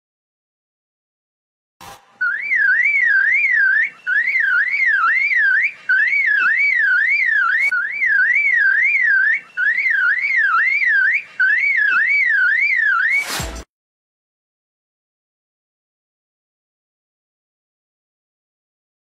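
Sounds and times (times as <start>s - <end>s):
bird mimicking car alarm: 2.2s - 13.4s.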